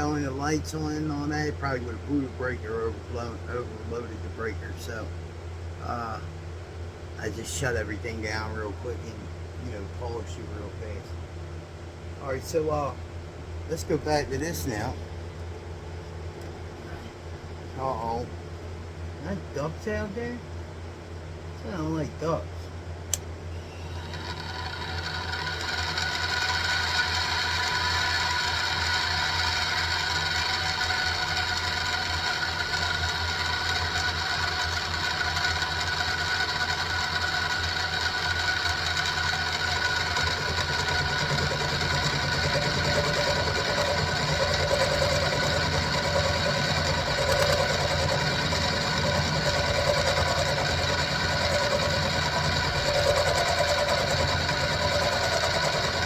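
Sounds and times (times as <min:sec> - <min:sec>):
milling machine whining: 0:23.2 - 0:56.0
cutter growling on steel: 0:23.9 - 0:56.0.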